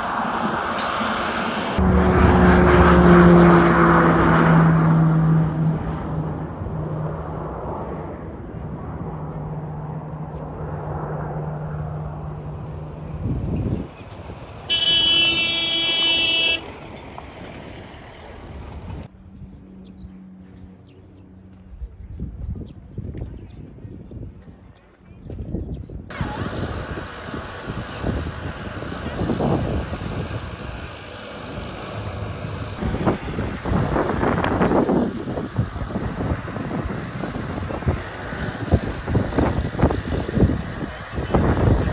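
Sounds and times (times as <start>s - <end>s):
loud horn blast: 0.0s - 6.5s, 14.7s - 16.9s, 29.1s - 37.4s
wind buffeting microphone: 0.0s - 15.7s, 21.6s - 41.9s
aircraft engines rumbling: 0.0s - 24.6s, 26.1s - 41.9s.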